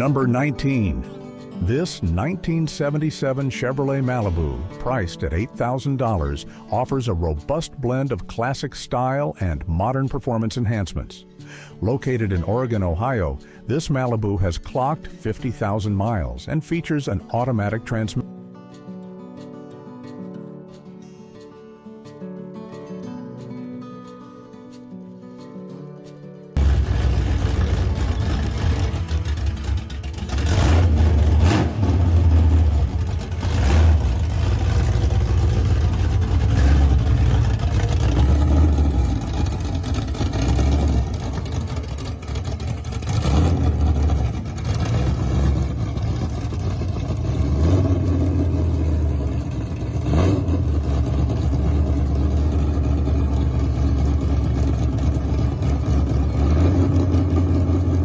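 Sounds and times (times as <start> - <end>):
car engine revving: 26.6 - 58.0.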